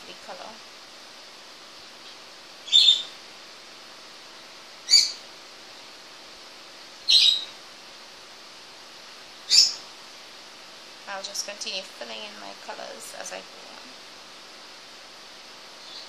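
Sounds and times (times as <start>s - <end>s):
faint steady hiss: 0.0s - 16.0s
bird chirping: 2.6s - 3.2s, 4.8s - 5.2s, 7.1s - 7.6s, 9.5s - 9.8s, 15.8s - 16.0s.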